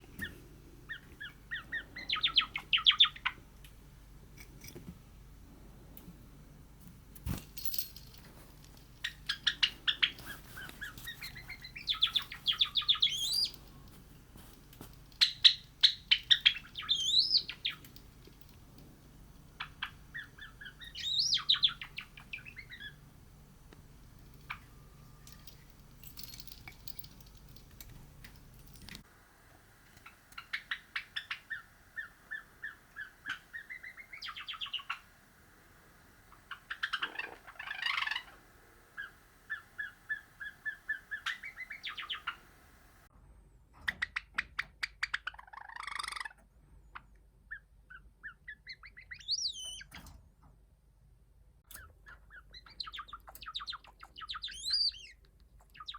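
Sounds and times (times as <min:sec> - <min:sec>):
sparrow singing clicking trills: 0:00.2 - 0:03.4, 0:09.0 - 0:14.0, 0:15.2 - 0:18.1, 0:19.5 - 0:23.0, 0:30.0 - 0:35.1, 0:39.0 - 0:42.5, 0:47.5 - 0:49.9, 0:51.7 - 0:55.9
high whistled bird glides: 0:09.6 - 0:13.6.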